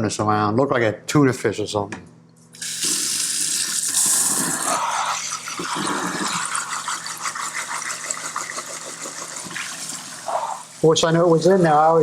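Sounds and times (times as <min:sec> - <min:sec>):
faucet water running into sink: 0:02.6 - 0:11.6.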